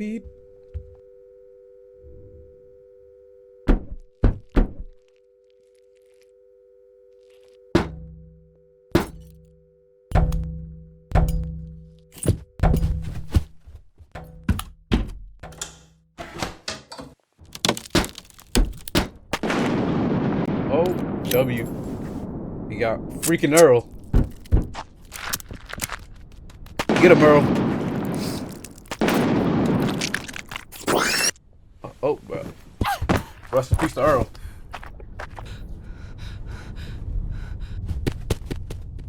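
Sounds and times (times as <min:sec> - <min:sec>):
low two-note hum: 0:00.0 - 0:05.4, 0:06.3 - 0:13.0
heavy thuds and bangs: 0:23.1 - 0:25.0.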